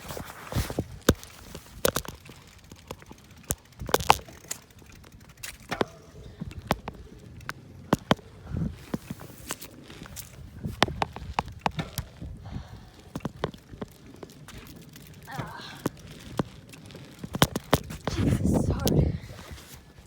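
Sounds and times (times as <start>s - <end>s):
bicycle rattling: 0.0s - 20.0s
low rumbles on microphone: 18.0s - 20.0s.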